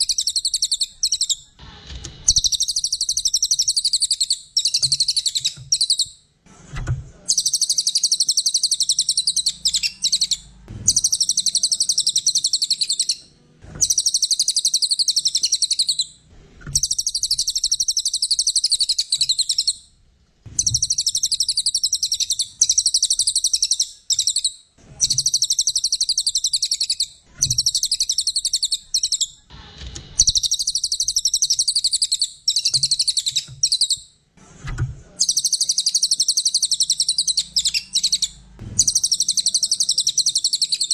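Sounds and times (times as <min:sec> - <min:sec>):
songbird chattering trills: 0:00.0 - 0:01.5, 0:07.3 - 0:13.2, 0:13.8 - 0:16.1, 0:16.8 - 0:19.8, 0:20.6 - 0:29.4, 0:35.2 - 0:40.9.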